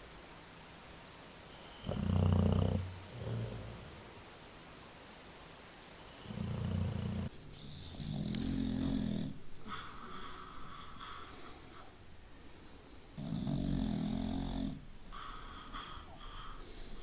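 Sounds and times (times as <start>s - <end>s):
dog snoring: 1.5s - 4.1s, 6.2s - 11.9s, 13.2s - 16.7s.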